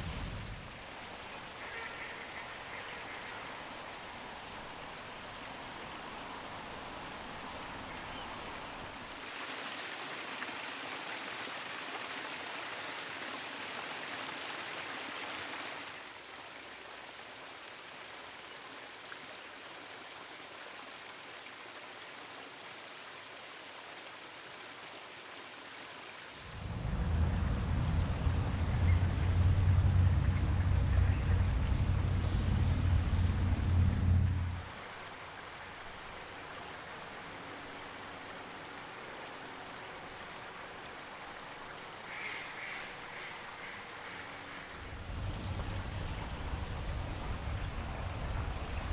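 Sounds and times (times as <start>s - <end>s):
running water rushing: 0.0s - 26.8s, 34.3s - 47.4s
loud low rumble: 26.6s - 34.6s, 45.0s - 48.9s.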